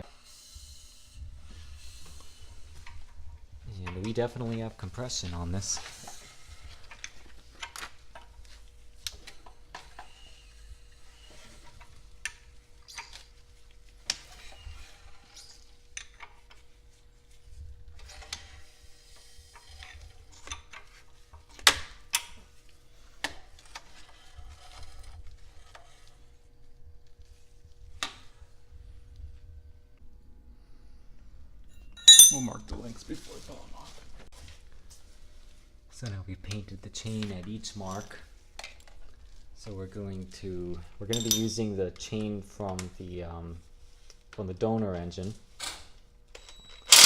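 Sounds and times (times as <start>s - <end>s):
metal tools clicking and clinking: 32.0s - 32.6s, 41.1s - 41.6s, 46.4s - 47.0s.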